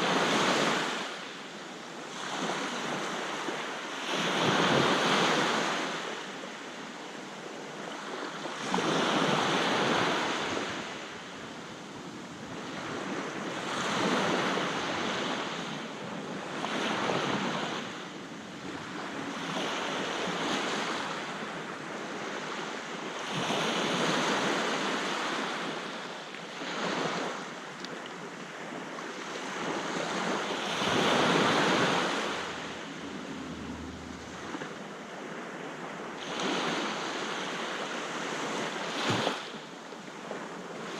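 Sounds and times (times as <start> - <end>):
sea waves breaking: 28.6 - 39.5
wind buffeting microphone: 29.6 - 37.4.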